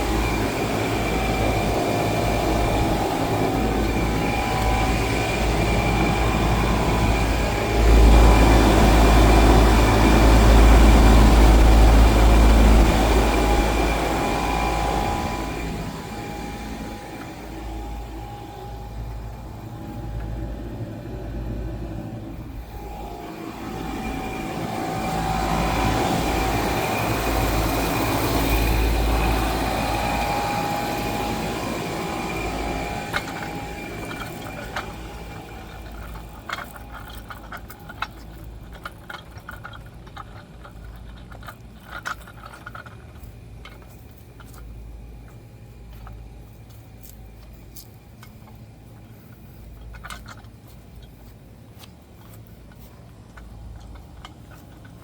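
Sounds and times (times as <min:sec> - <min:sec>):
heat pump humming and whining: 0:00.0 - 0:55.0.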